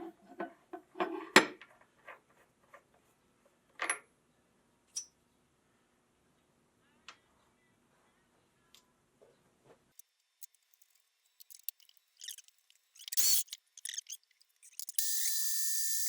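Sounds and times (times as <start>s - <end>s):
small metallic clicks: 10.0s - 16.0s
high-pitched spindle whine: 11.4s - 16.0s.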